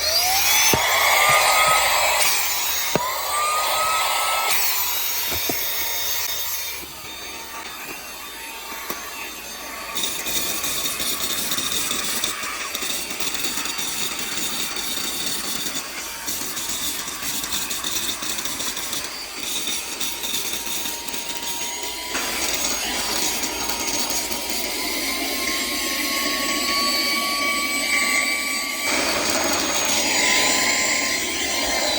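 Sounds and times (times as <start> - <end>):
vacuum motor whining: 0.0 - 31.9.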